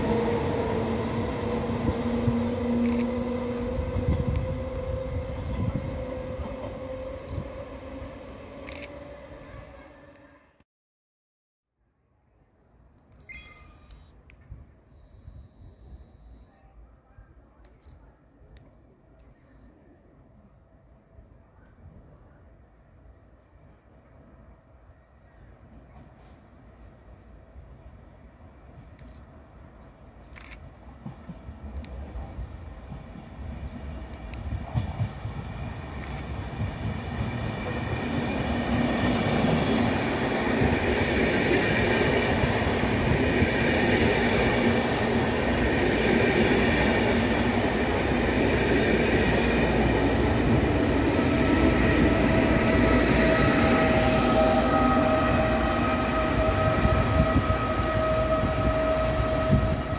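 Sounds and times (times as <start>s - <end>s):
train wheels rumbling on rails: 0.0s - 9.8s, 29.8s - 59.9s
electric locomotive whine: 0.0s - 10.6s, 26.7s - 59.9s.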